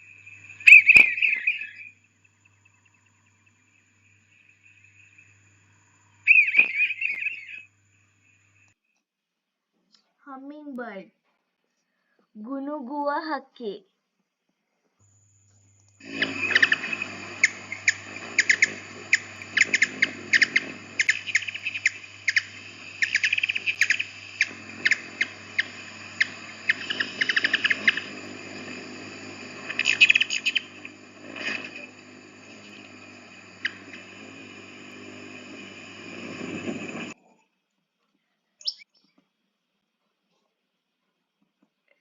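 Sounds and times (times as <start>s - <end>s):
hummingbird chirping: 0.0s - 8.7s, 16.0s - 37.2s, 38.6s - 39.0s.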